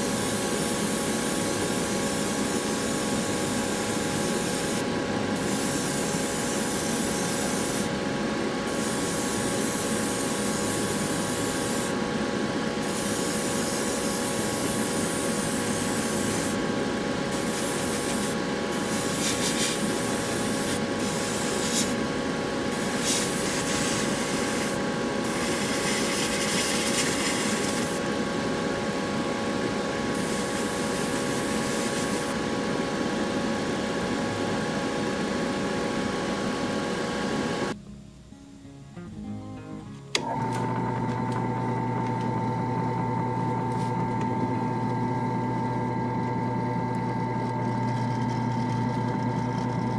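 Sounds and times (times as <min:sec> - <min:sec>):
steady hum: 0:00.0 - 0:40.2
spray paint hissing from nozzle: 0:00.1 - 0:04.8, 0:05.4 - 0:07.9, 0:08.7 - 0:12.0, 0:12.8 - 0:16.6, 0:17.3 - 0:22.0, 0:22.7 - 0:28.0, 0:30.2 - 0:32.4.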